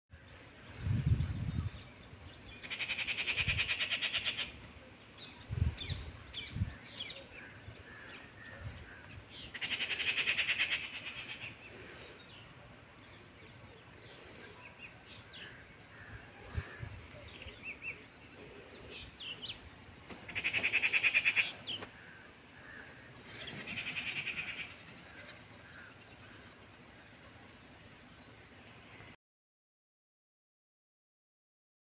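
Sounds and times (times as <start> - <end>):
birds trilling: 2.6 - 5.2, 5.8 - 27.8.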